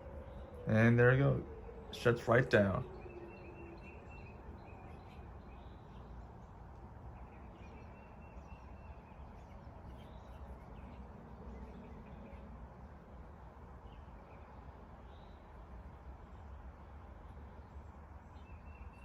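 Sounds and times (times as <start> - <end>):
distant birds chirping: 0.0 - 12.6.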